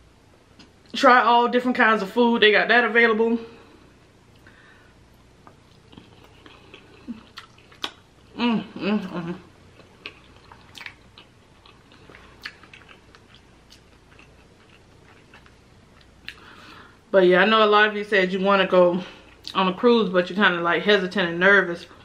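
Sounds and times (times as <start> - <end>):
person chewing soft food: 4.3 - 16.9, 19.2 - 19.6
short hummed voice: 8.3 - 9.5.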